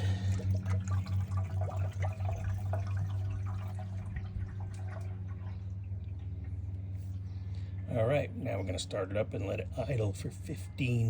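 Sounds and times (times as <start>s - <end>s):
liquid glugging from bottle: 0.0s - 5.9s
steady low hum: 0.0s - 11.0s.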